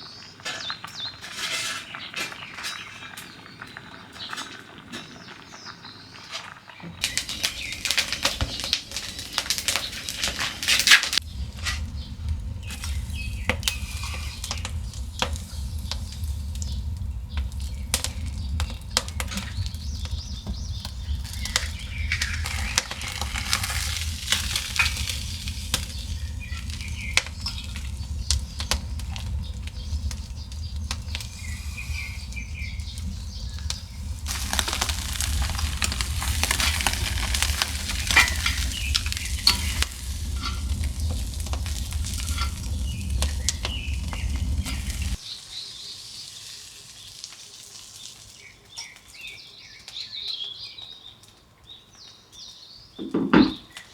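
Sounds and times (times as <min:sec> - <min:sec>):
food sizzling over a fire: 0:00.0 - 0:53.9
low steady rumble: 0:11.2 - 0:45.2.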